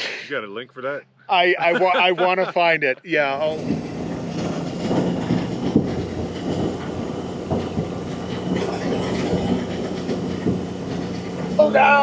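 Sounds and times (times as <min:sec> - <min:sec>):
vehicle engine hum: 0:00.4 - 0:12.0
rattling and clattering: 0:03.2 - 0:12.0.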